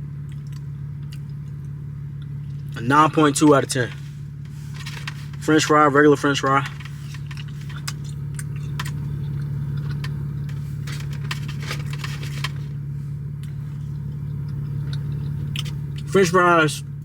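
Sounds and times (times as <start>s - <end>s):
idling car hum: 0.0s - 17.0s
food clicks and rustles: 3.4s - 5.5s, 6.6s - 16.1s.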